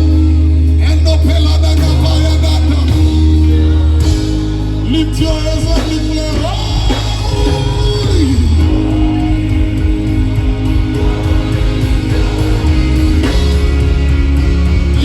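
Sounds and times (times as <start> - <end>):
person singing: 0.0 - 15.0
worship band playing: 0.0 - 15.0.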